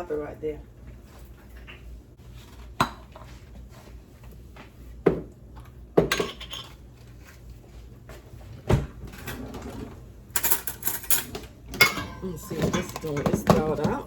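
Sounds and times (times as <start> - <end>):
low steady hum: 0.0 - 14.0
kitchenware knocks and clinks: 6.0 - 6.8, 10.4 - 14.0.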